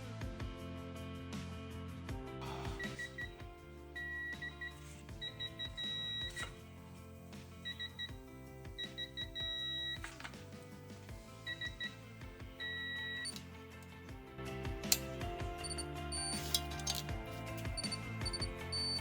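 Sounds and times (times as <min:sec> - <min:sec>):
background music: 0:00.0 - 0:19.0
high-pitched electronic beeps: 0:04.0 - 0:06.6, 0:12.6 - 0:13.4, 0:17.7 - 0:19.0.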